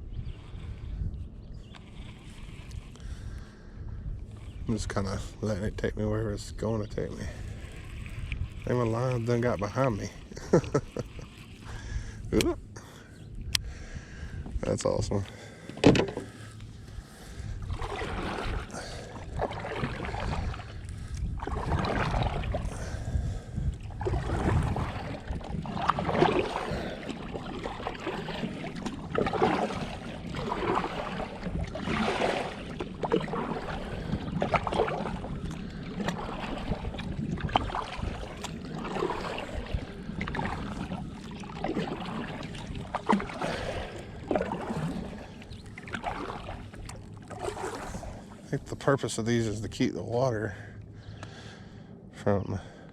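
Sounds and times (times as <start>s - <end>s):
paddle strokes splashing: 1.6s - 3.4s, 6.7s - 12.8s, 15.3s - 49.7s
water dripping off paddle: 17.7s - 22.9s, 23.8s - 48.4s.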